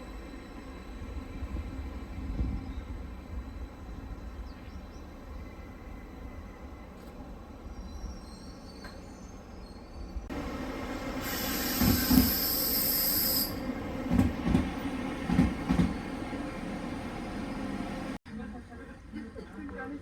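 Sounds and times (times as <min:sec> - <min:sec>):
high hiss: 0:11.1 - 0:13.6
train wheels clacking on rail joints: 0:14.0 - 0:16.3.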